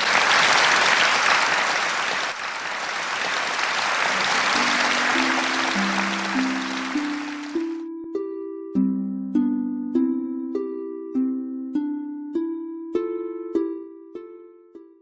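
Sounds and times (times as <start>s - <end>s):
audience applauding: 0.0s - 7.8s
plucked harp-like notes: 4.6s - 15.0s.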